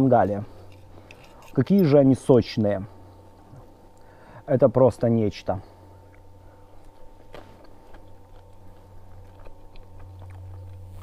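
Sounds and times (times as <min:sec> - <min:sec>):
steady low hum: 0:00.0 - 0:11.0
man chewing: 0:06.0 - 0:11.0.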